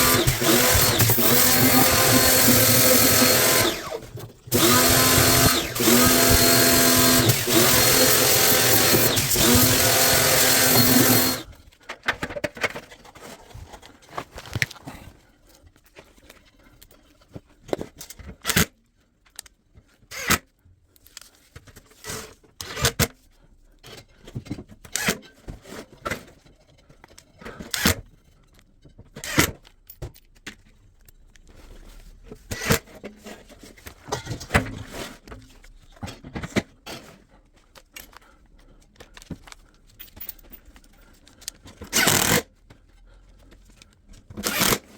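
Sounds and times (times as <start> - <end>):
clicks and clinks of parts handled: 15.8 - 20.4, 26.0 - 31.6, 35.3 - 42.0.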